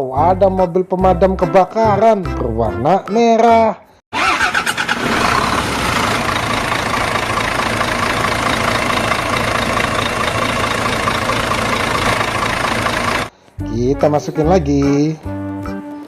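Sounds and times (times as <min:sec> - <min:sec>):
vehicle engine idling: 0:04.2 - 0:13.3.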